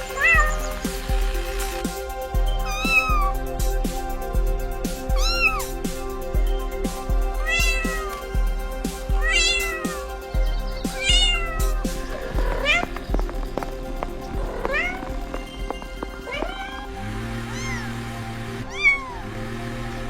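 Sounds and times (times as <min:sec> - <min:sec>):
music with steady beat: 0:00.0 - 0:18.8
cat meowing: 0:00.2 - 0:00.8, 0:02.7 - 0:03.4, 0:05.2 - 0:05.7, 0:07.4 - 0:08.3, 0:09.2 - 0:10.2, 0:11.0 - 0:13.0, 0:14.4 - 0:15.2, 0:16.2 - 0:18.0, 0:18.6 - 0:19.3.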